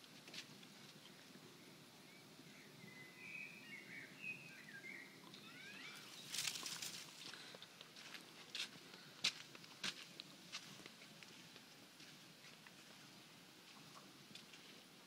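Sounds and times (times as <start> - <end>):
small bird warbling chirps: 3.0 - 6.6
footsteps on dry ground: 6.1 - 14.8.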